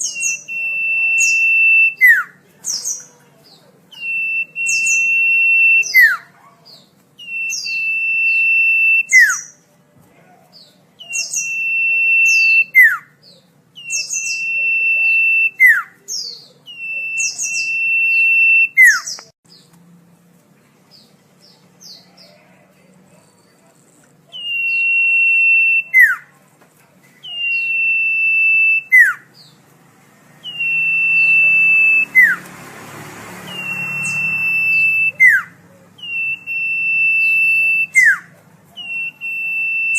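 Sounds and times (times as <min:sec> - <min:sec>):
bird whistling song: 0:00.0 - 0:03.2, 0:03.9 - 0:09.6, 0:11.0 - 0:19.6, 0:24.3 - 0:26.3, 0:27.2 - 0:29.5, 0:30.4 - 0:32.5, 0:33.4 - 0:39.9.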